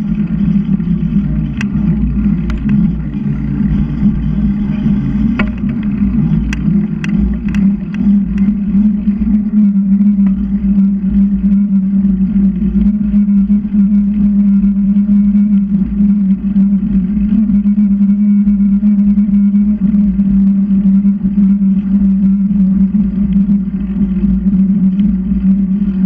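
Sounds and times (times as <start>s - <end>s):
sharp ticks: 0.0s - 11.3s
wind and road rumble: 0.0s - 11.4s
constant hum: 0.0s - 26.0s.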